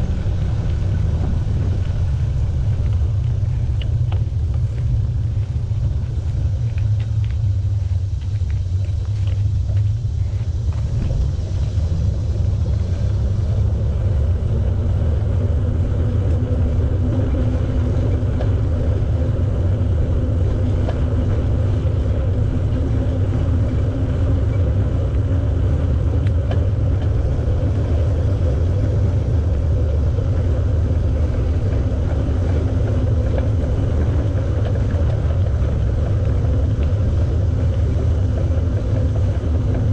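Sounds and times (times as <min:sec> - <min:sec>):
faint steady hum: 0:00.0 - 0:39.9
wind buffeting microphone: 0:00.0 - 0:39.9.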